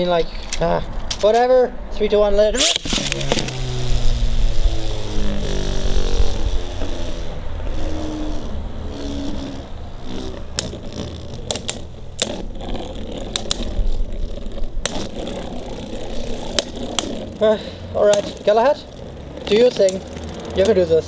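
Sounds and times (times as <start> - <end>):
wind on microphone: 2.4 - 10.4
spinning tops whirring: 2.6 - 21.0.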